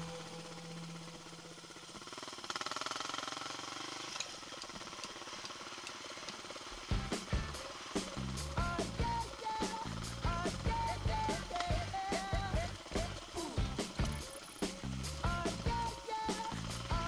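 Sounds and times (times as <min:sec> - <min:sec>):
motorcycle engine running: 0:00.0 - 0:17.0
music: 0:06.9 - 0:17.0.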